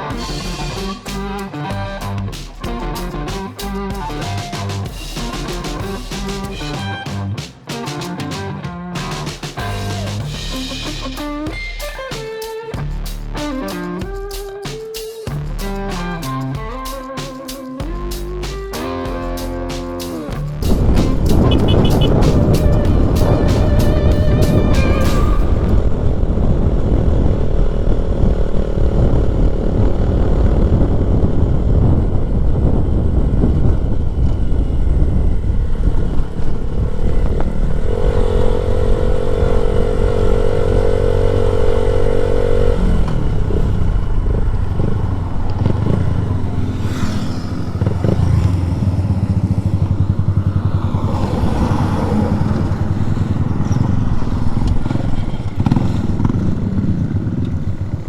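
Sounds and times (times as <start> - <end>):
steady pitched tone: 17.8 - 27.8
motorcycle engine running: 17.8 - 58.0
wind noise on microphone: 20.3 - 58.0.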